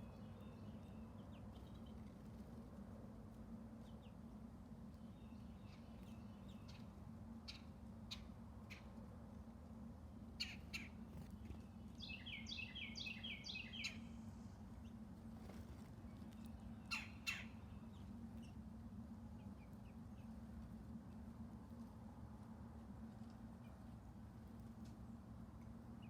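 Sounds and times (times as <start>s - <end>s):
faint low hum: 0.0s - 26.0s
bird whistled song: 12.0s - 14.2s.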